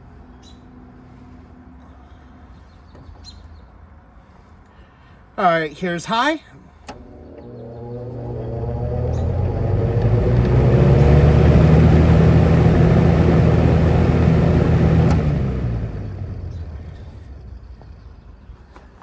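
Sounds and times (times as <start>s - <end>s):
fan switch click: 6.8s - 10.7s, 14.8s - 15.4s
box fan air rushing: 6.8s - 17.3s.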